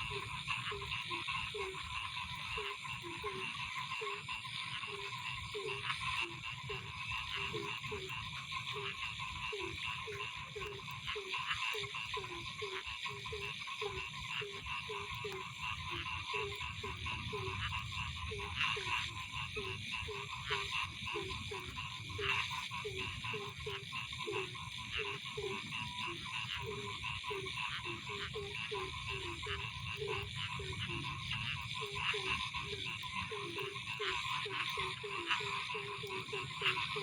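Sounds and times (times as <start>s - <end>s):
frogs croaking: 0.0s - 37.0s
pulsing frog chorus: 0.0s - 37.0s.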